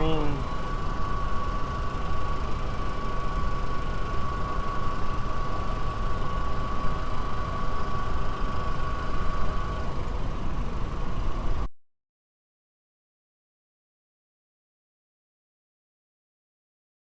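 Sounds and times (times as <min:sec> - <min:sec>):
steady high whine: 0:00.0 - 0:11.7.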